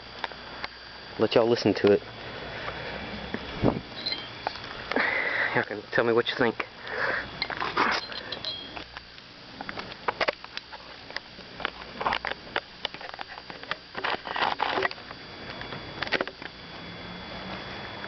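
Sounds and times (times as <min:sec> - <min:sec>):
breaths near microphone: 0:06.8 - 0:08.4.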